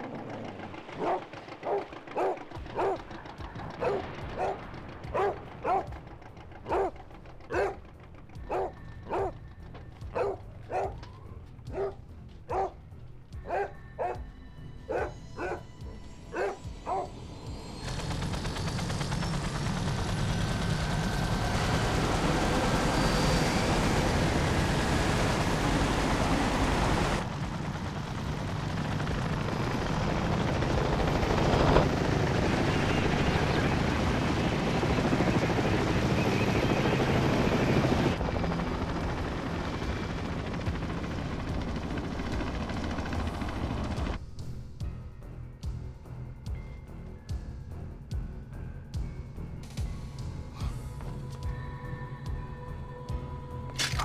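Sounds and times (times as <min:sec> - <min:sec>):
helicopter rotors rumbling: 0:00.0 - 0:52.4
dog barking: 0:01.0 - 0:03.1, 0:03.8 - 0:05.9, 0:06.7 - 0:07.8, 0:08.5 - 0:09.4, 0:10.1 - 0:11.0, 0:11.7 - 0:12.8, 0:13.4 - 0:14.2, 0:14.9 - 0:15.7, 0:16.3 - 0:17.1.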